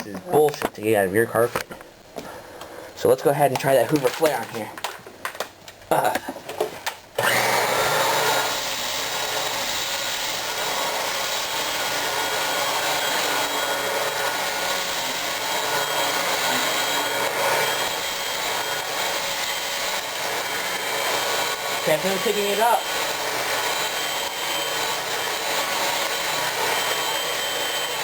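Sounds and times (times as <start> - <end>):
vacuum cleaner motor running: 7.2 - 28.0.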